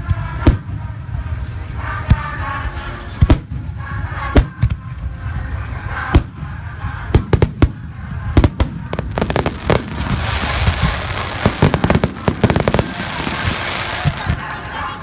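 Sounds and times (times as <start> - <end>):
fireworks bursting with bangs: 0.0 - 15.0
fireworks hiss: 7.2 - 15.0.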